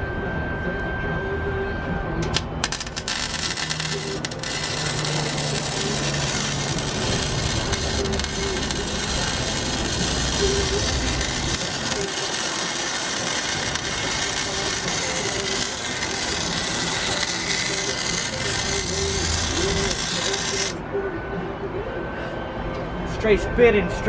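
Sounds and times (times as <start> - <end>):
welder crackling hiss: 2.2 - 20.8.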